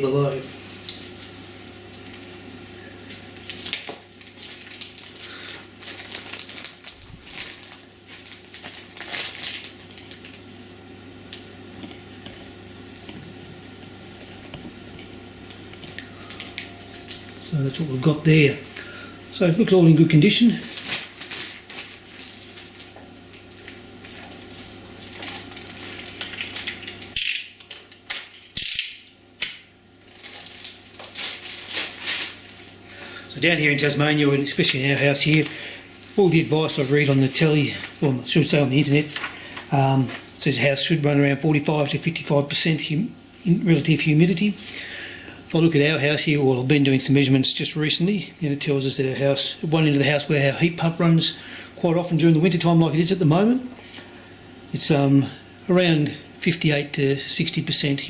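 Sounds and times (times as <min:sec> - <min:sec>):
packing material crinkling: 0:00.3 - 0:10.5, 0:15.8 - 0:19.0, 0:20.2 - 0:29.1, 0:30.0 - 0:40.4
packaging rustling and clicking: 0:05.8 - 0:10.4, 0:20.7 - 0:28.9, 0:30.1 - 0:32.8.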